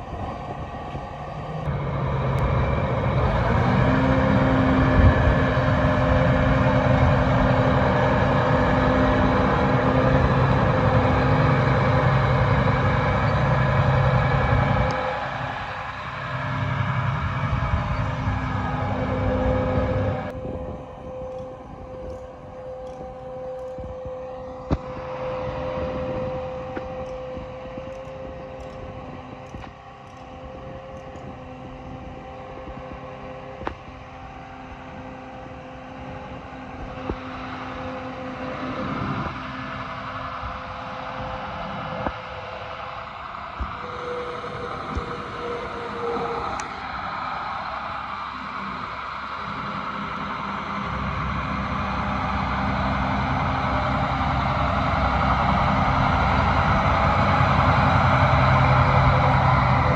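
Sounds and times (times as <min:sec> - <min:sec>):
tractor diesel engine idling: 0:00.0 - 0:59.9.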